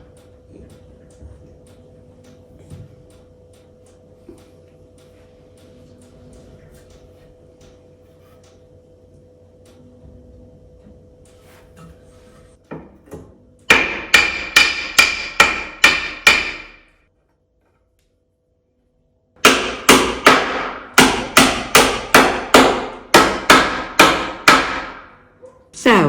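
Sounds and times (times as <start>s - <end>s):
hammer blows on wood: 13.7s - 16.9s, 19.4s - 25.2s.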